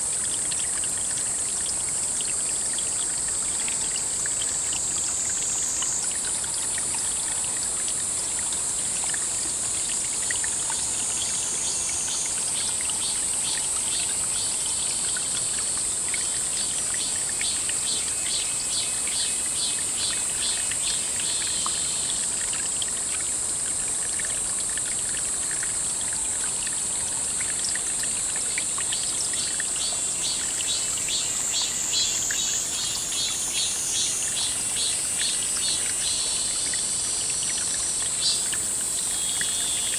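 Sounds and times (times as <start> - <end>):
insects chorus: 9.5 - 22.6, 28.0 - 39.9
insect pulsing call: 10.2 - 22.4, 29.0 - 39.9.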